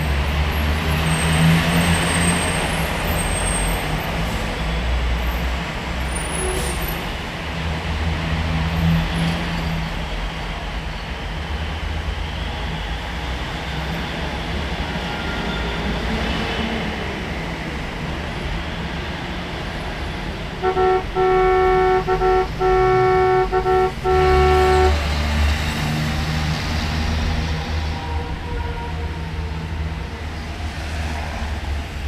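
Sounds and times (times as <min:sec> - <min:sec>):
vehicle horn toots: 0:20.6 - 0:25.4
vehicle engine rumble: 0:20.6 - 0:27.7.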